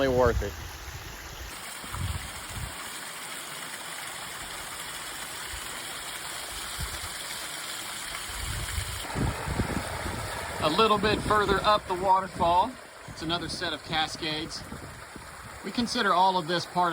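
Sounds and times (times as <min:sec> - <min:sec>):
waterfall rushing: 0:07.1 - 0:16.9.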